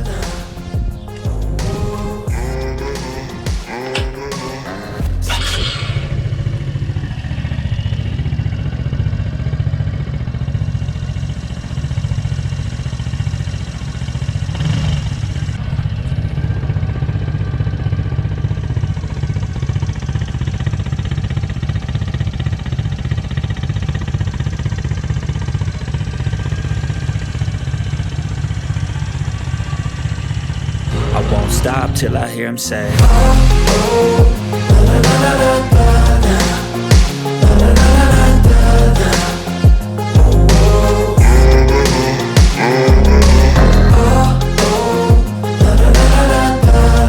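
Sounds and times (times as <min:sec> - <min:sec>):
small motorcycle engine idling: 0:06.1 - 0:30.9.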